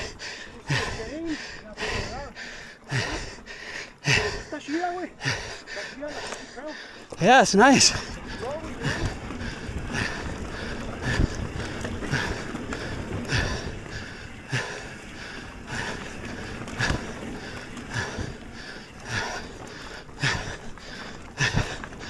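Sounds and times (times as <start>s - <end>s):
person breathing hard: 0.0s - 8.1s, 8.8s - 11.4s, 12.0s - 22.0s.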